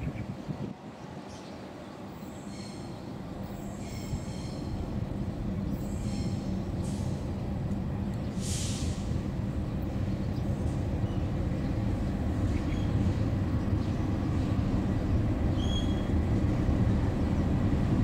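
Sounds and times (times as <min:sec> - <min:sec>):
train rumbling on rails: 0:00.0 - 0:18.0
wheels squealing on rails: 0:02.1 - 0:04.9, 0:05.7 - 0:07.3, 0:15.4 - 0:16.4
short hiss: 0:08.4 - 0:09.1.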